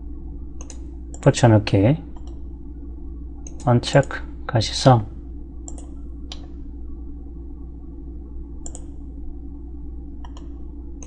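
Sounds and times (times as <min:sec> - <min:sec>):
low electrical hum: 0:00.0 - 0:11.0
computer mouse clicks: 0:00.6 - 0:01.3, 0:02.2 - 0:02.4, 0:05.6 - 0:06.5, 0:08.6 - 0:09.0, 0:10.2 - 0:10.6.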